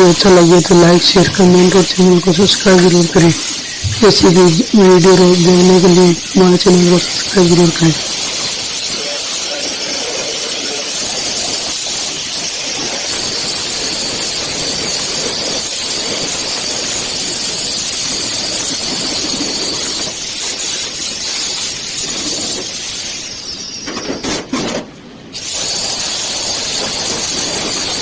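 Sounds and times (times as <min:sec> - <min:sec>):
angle grinder grinding metal: 0:00.0 - 0:15.8.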